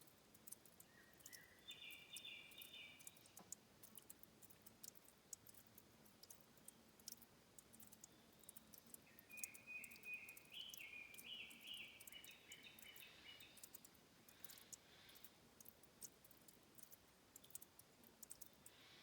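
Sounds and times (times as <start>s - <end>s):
water dripping and trickling: 0.0s - 19.0s
bird singing whistled notes: 0.9s - 3.1s, 9.1s - 13.6s.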